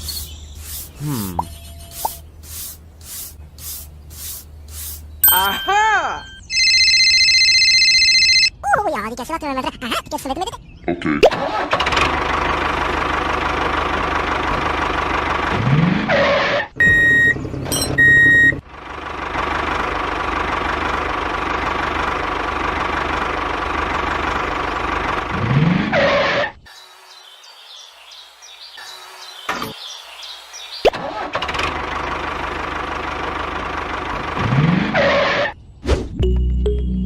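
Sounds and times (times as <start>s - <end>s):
engine running: 11.4s - 26.0s, 30.9s - 35.6s.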